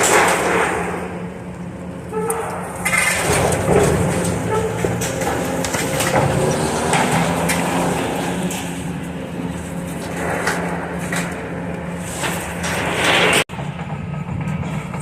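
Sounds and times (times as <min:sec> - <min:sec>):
demolition machine engine running: 0:00.0 - 0:15.0
debris knocking and crunching: 0:02.5 - 0:13.4.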